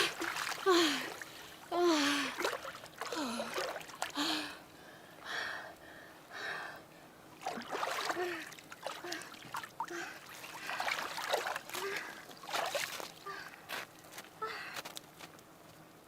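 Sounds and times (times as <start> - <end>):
faint water splashing: 0.0 - 4.4, 7.3 - 13.8
person gasping: 0.7 - 2.4
person breathing hard: 3.1 - 7.0.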